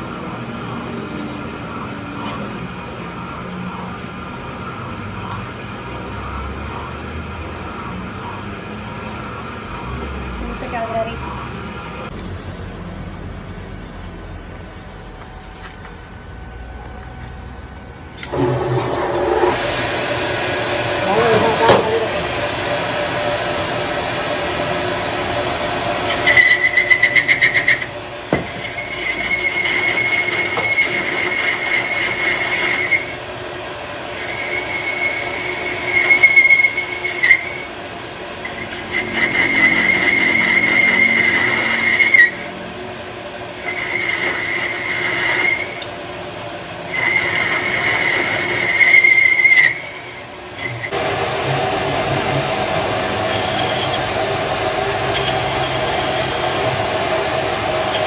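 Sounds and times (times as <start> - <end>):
machine running: 0.0 - 58.0
power tool whining on metal: 13.9 - 58.0.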